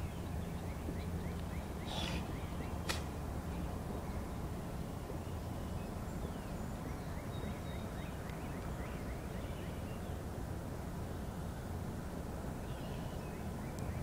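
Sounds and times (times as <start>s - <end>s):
bird chirping: 0.0s - 10.2s.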